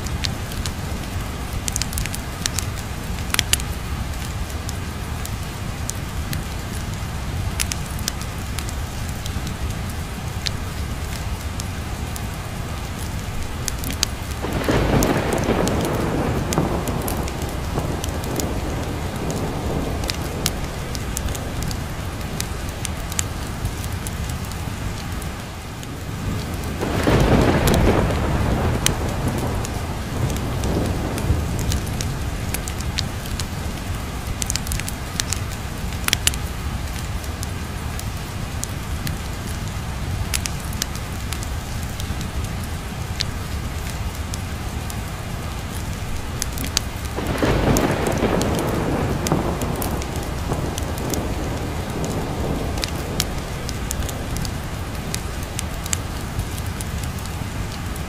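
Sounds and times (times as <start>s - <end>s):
heavy rain: 0.0s - 58.0s
log fire crackling: 0.0s - 58.0s
thunder rolling: 13.9s - 23.9s, 26.2s - 34.8s, 46.6s - 57.3s.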